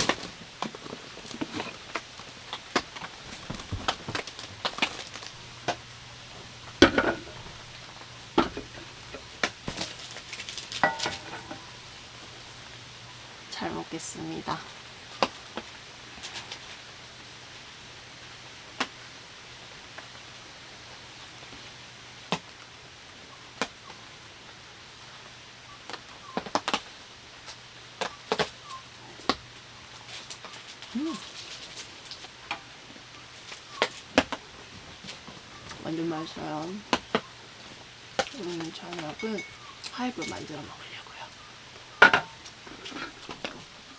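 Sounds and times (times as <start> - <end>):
prawns sizzling in oil: 0.0 - 43.9
rain hiss: 0.0 - 43.9
utensils clinking on cookware: 4.4 - 12.6, 38.3 - 40.8, 41.9 - 43.8.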